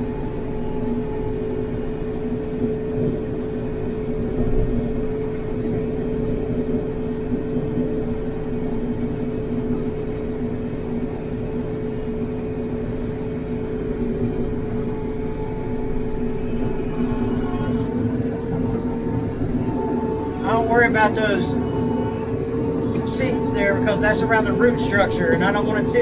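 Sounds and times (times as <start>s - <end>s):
tractor diesel engine droning: 14.0s - 26.0s.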